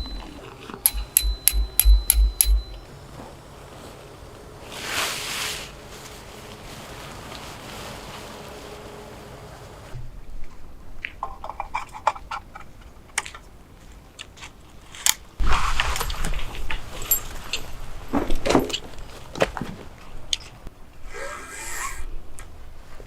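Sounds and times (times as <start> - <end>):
objects clicking and clinking: 0.0 - 2.8.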